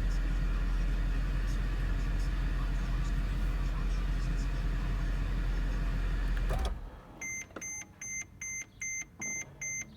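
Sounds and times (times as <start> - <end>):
car engine idling: 0.0 - 6.9
car warning chime beeps: 7.2 - 9.9.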